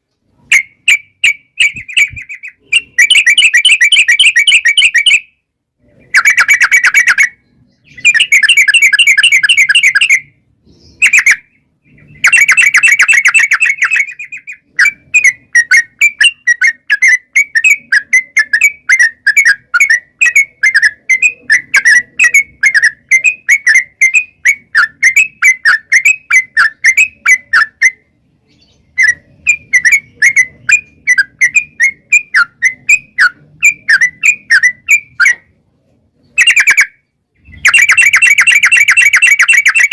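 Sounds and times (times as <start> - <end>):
bird chirping notes: 0.0 - 39.9
bird rolling trills: 12.1 - 28.0, 37.5 - 39.9.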